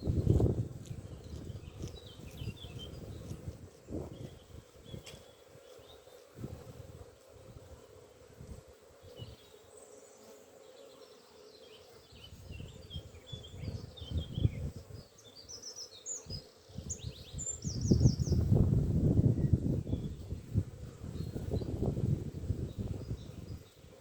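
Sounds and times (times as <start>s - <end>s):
wind and handling rumbles: 0.0s - 5.3s
songbirds chirping: 0.0s - 6.4s, 8.9s - 24.0s
honeybees humming: 0.0s - 24.0s.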